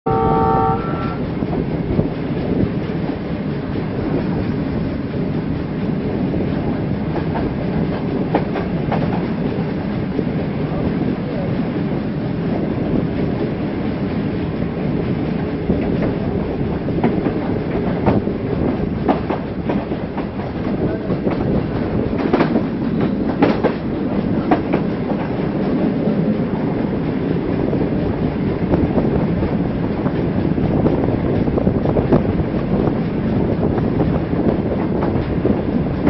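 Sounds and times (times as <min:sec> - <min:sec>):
train wheels rumbling on rail: 0:00.1 - 0:36.0
wheels clacking over rail joints: 0:14.1 - 0:36.0.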